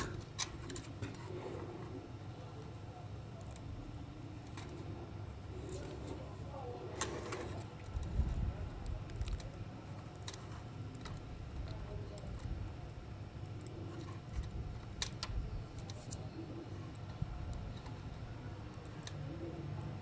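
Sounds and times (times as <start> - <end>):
steady low hum: 0.0 - 20.0
small clicks and taps of toy parts: 7.7 - 16.2.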